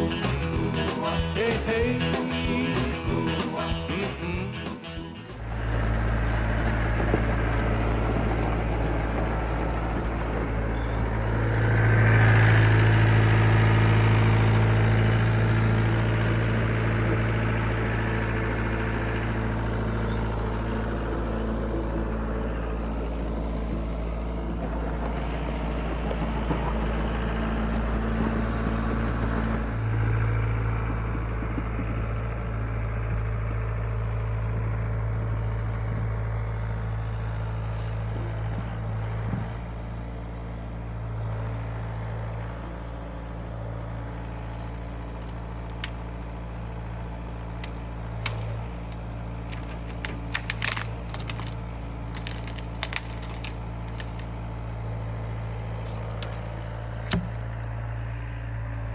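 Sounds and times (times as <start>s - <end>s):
excavator diesel engine running: 0.0s - 58.9s
sharp cracks and crackles: 45.1s - 57.9s.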